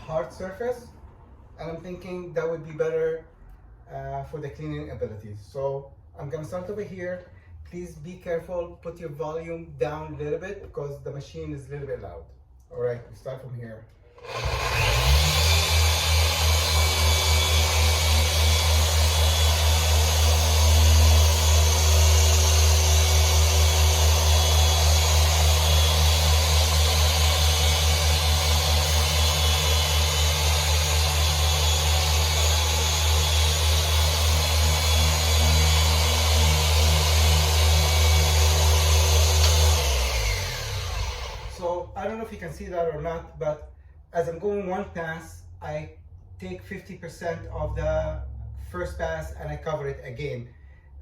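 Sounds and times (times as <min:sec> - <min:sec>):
machine polisher droning: 0:14.2 - 0:41.6.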